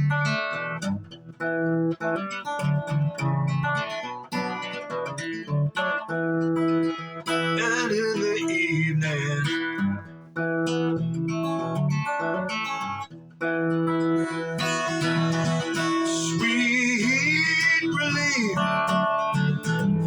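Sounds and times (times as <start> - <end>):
acoustic guitar chords: 0.0 - 20.0
wavering higher melody: 14.0 - 19.0.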